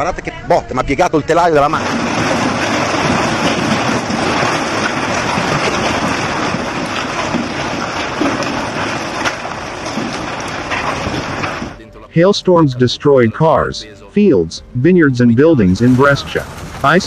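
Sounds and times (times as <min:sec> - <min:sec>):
hail and rain pelting down: 0:01.7 - 0:11.8, 0:15.8 - 0:17.0
hailstones striking hard surface: 0:01.8 - 0:11.8, 0:15.8 - 0:17.0.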